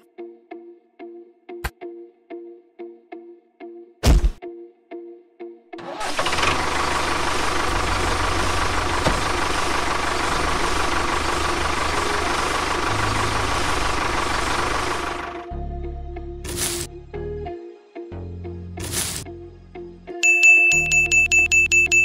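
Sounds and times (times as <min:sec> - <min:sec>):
tractor engine running: 0:05.8 - 0:15.5, 0:16.5 - 0:16.9.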